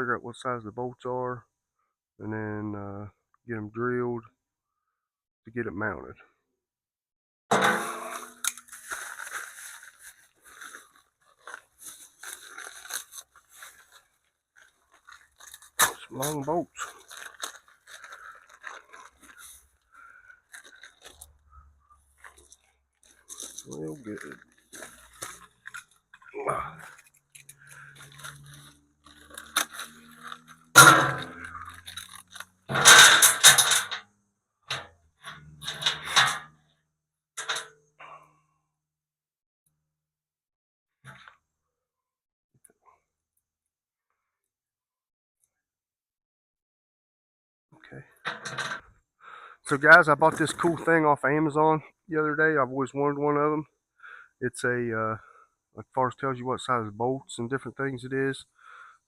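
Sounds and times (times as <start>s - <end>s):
handling noise scraping and crunching: 7.5s - 36.7s, 37.4s - 37.7s, 48.2s - 49.0s, 49.7s - 51.0s
packaging crinkling and rustling: 8.5s - 21.4s, 22.1s - 30.7s, 31.4s - 32.6s.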